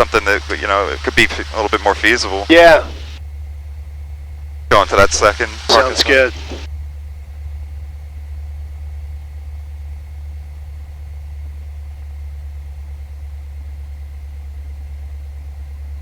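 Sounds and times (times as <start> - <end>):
aircraft piston engine drone: 0.0 - 8.6.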